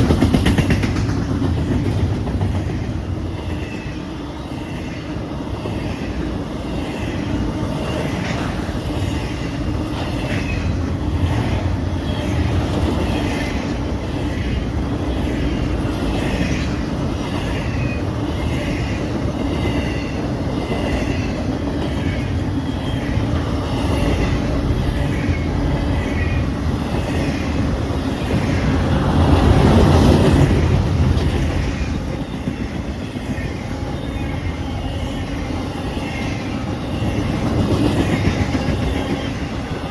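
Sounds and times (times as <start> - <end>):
rhythmic clicking of wheels: 0.0 - 3.9
freight train rumbling on rails: 0.0 - 39.9.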